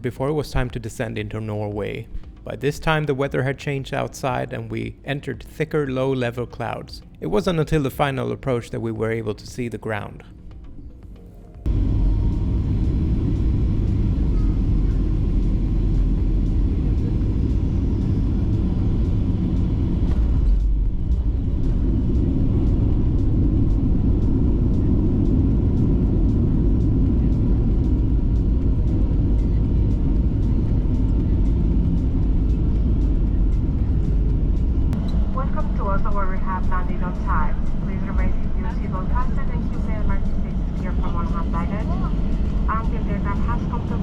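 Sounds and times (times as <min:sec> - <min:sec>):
jet engines rumbling: 0:11.6 - 0:44.0
wheels rumbling on runway: 0:11.7 - 0:35.7.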